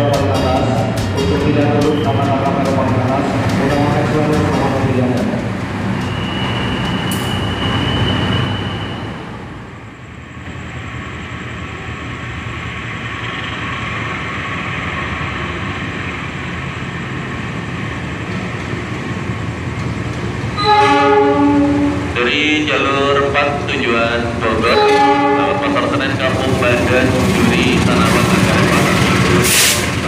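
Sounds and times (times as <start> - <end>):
departing train noise: 0.0 - 30.0
passenger train approaching rumble: 0.0 - 30.0
locomotive air horn chord: 20.6 - 22.2, 24.6 - 26.1, 29.4 - 29.9.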